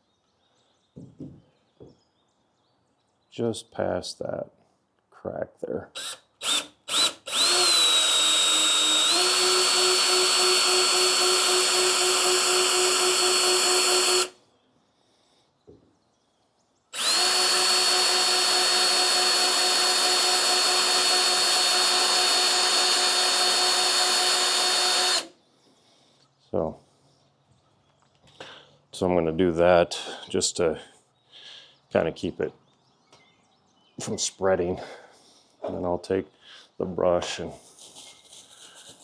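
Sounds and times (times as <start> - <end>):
cordless drill drilling plastic: 6.0 - 14.4, 17.0 - 25.3.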